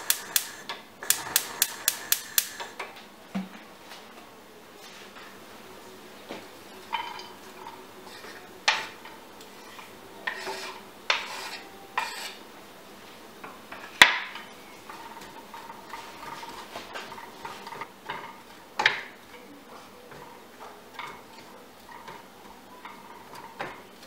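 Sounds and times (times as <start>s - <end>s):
utensils and dishes clinking: 6.6s - 12.4s, 13.7s - 24.0s.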